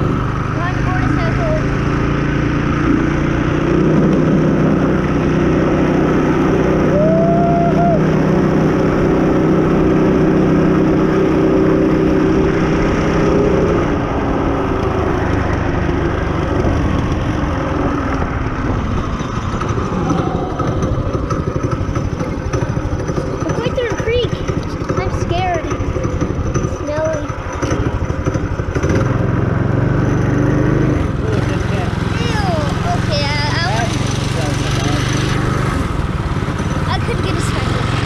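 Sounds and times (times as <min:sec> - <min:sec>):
small motorcycle engine running: 0:00.0 - 0:38.0
wind noise: 0:02.7 - 0:23.5.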